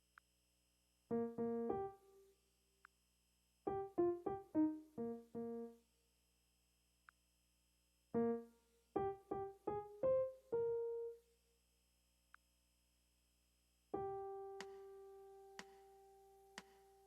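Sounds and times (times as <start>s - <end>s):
keyboard notes: 1.1s - 2.2s, 3.7s - 5.8s.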